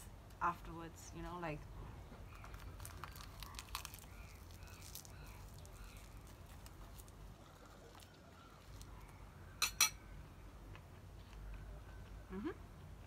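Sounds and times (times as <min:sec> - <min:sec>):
seaweed crackling as it is chewed: 0:02.3 - 0:09.2.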